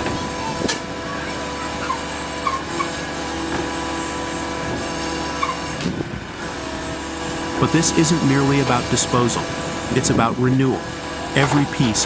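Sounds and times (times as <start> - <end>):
machinery hissing drone: 6.3 - 12.0.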